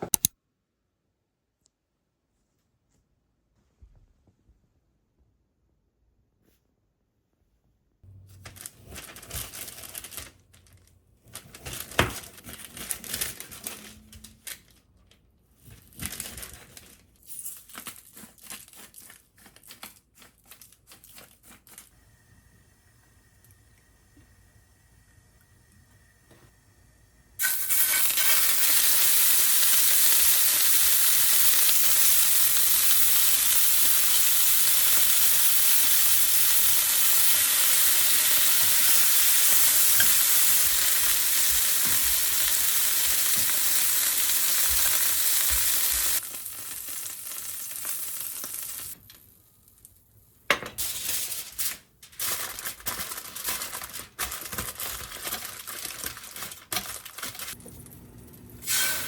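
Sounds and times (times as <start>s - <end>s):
food sizzling in a pan: 27.4s - 49.0s, 58.4s - 59.0s.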